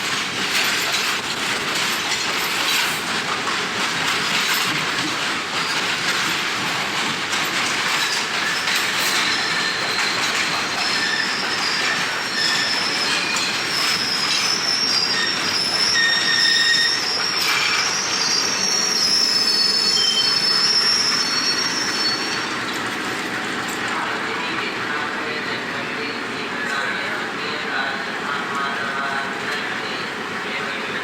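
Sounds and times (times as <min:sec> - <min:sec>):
train wheels squealing on rails: 0:00.0 - 0:23.1
train running: 0:00.0 - 0:31.0.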